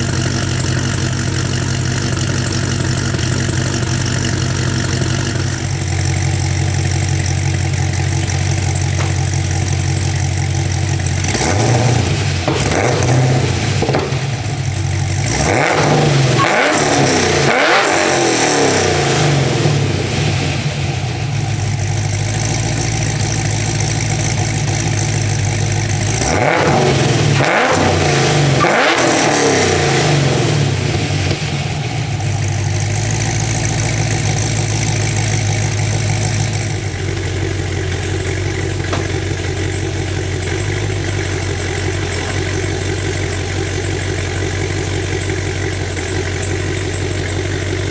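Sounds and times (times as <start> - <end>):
lumpy car engine idle: 0.0 - 15.3, 19.3 - 27.4, 30.4 - 47.9
engine revving blips: 11.2 - 21.0, 26.0 - 32.0.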